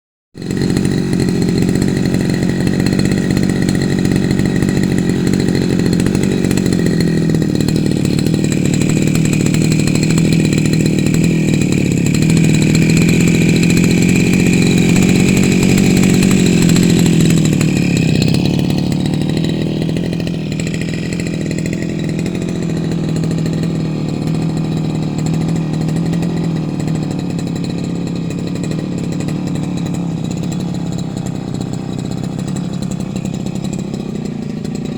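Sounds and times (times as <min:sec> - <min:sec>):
small engine running: 0:00.4 - 0:34.9.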